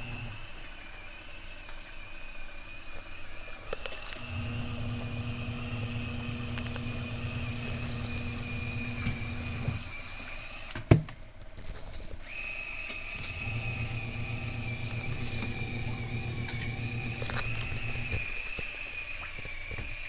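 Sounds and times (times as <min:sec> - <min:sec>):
small motor whining: 0:00.0 - 0:10.8, 0:12.2 - 0:20.0.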